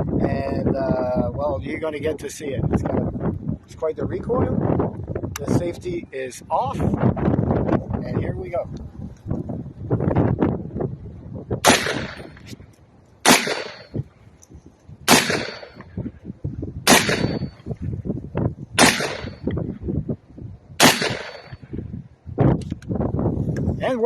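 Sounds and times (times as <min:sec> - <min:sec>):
wind buffeting microphone: 0:00.0 - 0:24.0
rifle shots: 0:11.6 - 0:12.4, 0:13.2 - 0:14.0, 0:15.1 - 0:15.9, 0:16.9 - 0:17.6, 0:18.8 - 0:19.5, 0:20.8 - 0:21.7.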